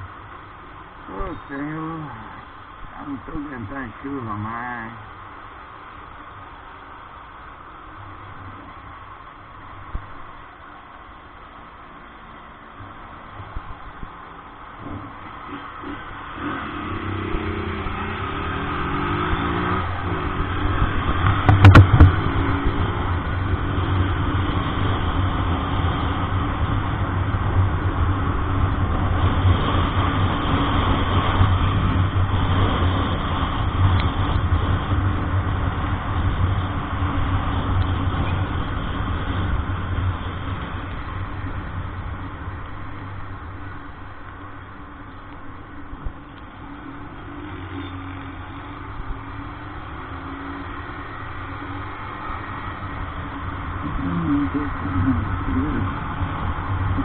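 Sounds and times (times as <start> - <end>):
tyres on wet road: 0.0 - 57.0
truck engine: 14.2 - 57.0
sharp knock: 21.3 - 22.2.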